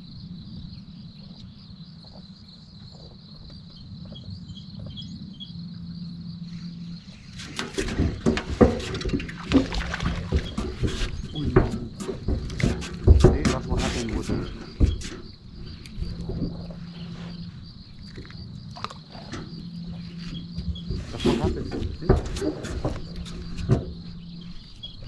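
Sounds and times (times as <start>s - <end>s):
crickets chirring: 0.0s - 25.0s
low hum: 0.0s - 25.0s
irregular knocks and rustles: 6.4s - 25.0s.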